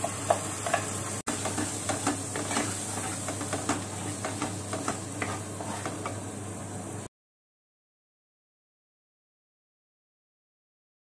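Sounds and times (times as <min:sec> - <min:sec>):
wooden spatula scraping and tapping: 0:00.0 - 0:06.2
paste sizzling in hot fat: 0:00.0 - 0:06.4.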